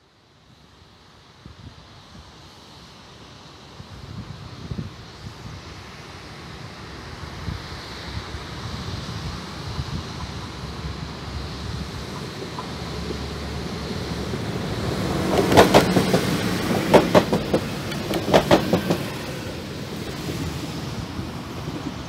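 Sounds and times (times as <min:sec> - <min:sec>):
train rumbling past: 0:04.0 - 0:22.0
sharp wheel clacks: 0:14.8 - 0:19.4.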